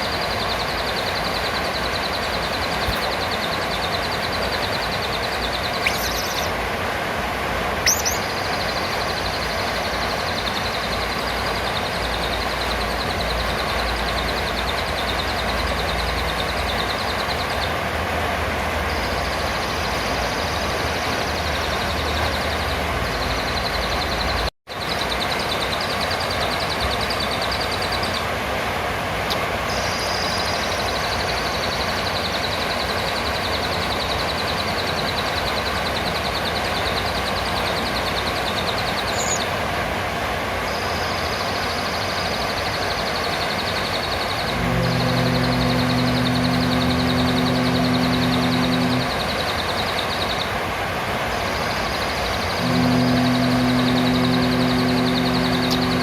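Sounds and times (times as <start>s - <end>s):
high fast-pulsing trill: 0.0s - 6.5s, 43.6s - 50.5s, 51.6s - 56.0s
parrot shrill rising calls: 5.7s - 6.5s, 7.8s - 8.5s.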